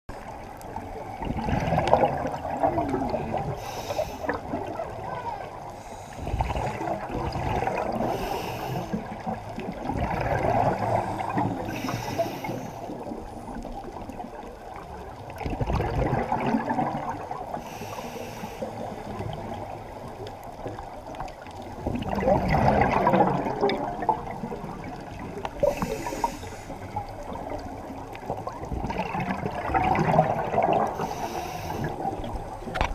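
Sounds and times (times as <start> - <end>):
bubbly underwater exhalation: 1.2 - 3.6, 6.2 - 8.3, 9.2 - 11.8, 15.3 - 17.6, 21.8 - 31.1
regulator inhalation hiss: 3.6 - 4.4, 8.0 - 9.0, 11.6 - 12.9, 17.6 - 19.0, 25.6 - 26.8, 31.0 - 32.1.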